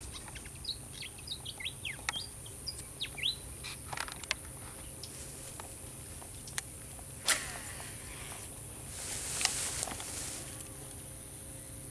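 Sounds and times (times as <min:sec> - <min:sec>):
small birds chirping: 0:00.0 - 0:03.9
steady high hiss: 0:00.0 - 0:11.9.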